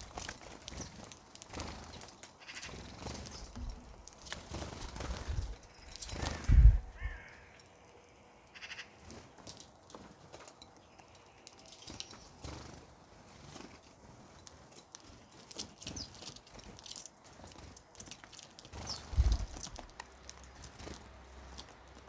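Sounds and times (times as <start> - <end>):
birds chirping: 0.0 - 14.0, 14.7 - 22.0
low thump: 6.5 - 7.0.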